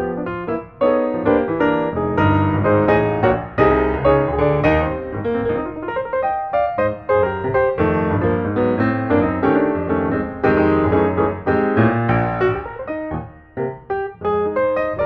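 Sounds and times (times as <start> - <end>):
piano playing chords: 0.0 - 15.0.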